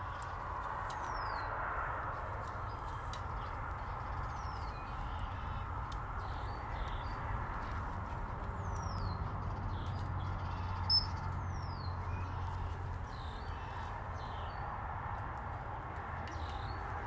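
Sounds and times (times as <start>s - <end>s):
faint bird chirps: 10.9s - 11.8s.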